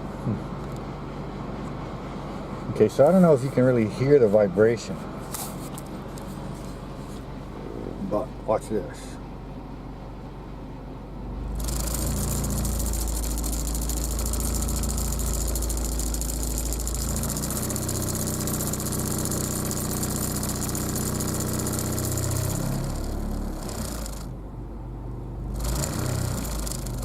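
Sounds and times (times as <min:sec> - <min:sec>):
car engine rumbling: 0:11.1 - 0:27.0.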